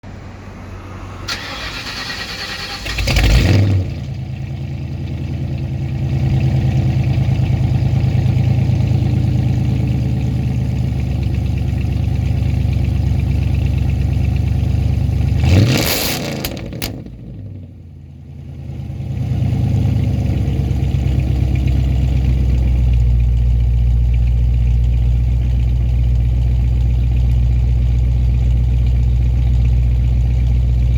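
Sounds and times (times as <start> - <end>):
engine revving: 1.0 - 10.2, 15.2 - 17.7, 18.5 - 22.6
car engine idling: 1.2 - 30.9.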